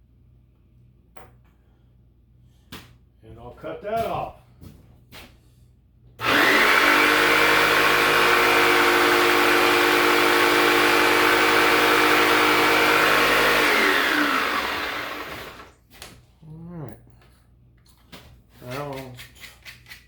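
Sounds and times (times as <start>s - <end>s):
electric power saw cutting wood: 6.2s - 15.7s.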